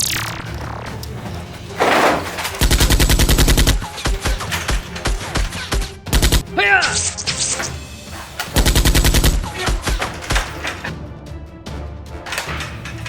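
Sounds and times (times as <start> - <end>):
automatic gunfire bursts: 2.6 - 4.3, 6.1 - 6.4, 8.6 - 9.5.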